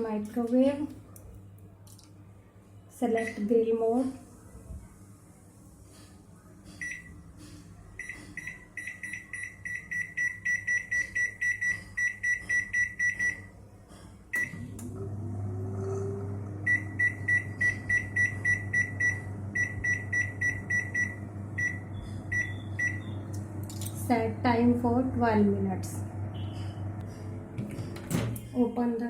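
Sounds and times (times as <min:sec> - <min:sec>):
microwave running hum: 0:00.0 - 0:29.0
microwave beeping rapidly: 0:08.0 - 0:13.6, 0:14.3 - 0:28.7.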